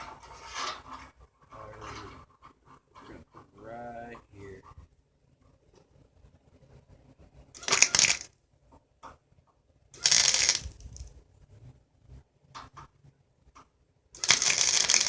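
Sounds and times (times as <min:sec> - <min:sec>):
arc welding crackle: 0:07.6 - 0:08.3, 0:10.0 - 0:11.0, 0:14.2 - 0:15.0.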